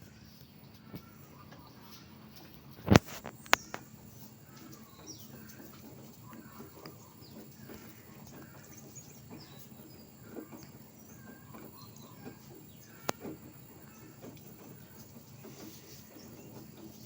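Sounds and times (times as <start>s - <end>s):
faint bird chirps: 0.0s - 17.0s
low background noise: 0.0s - 17.0s.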